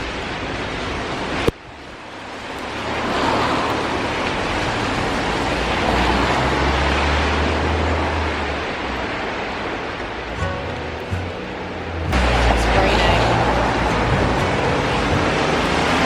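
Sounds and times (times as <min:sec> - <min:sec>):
rain: 0:00.0 - 0:16.0
low hum: 0:10.4 - 0:16.0
wind on microphone: 0:13.4 - 0:16.0.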